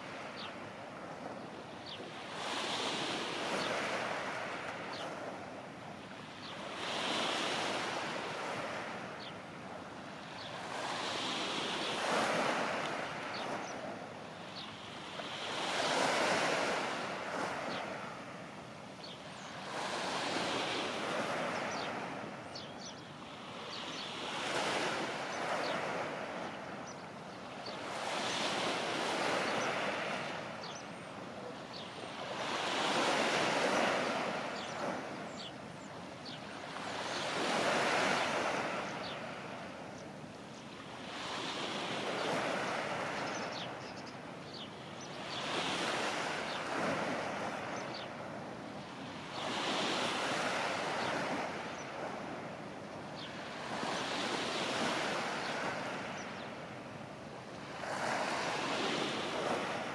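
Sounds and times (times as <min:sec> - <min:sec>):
small waves breaking on shore: 0:00.0 - 0:59.9.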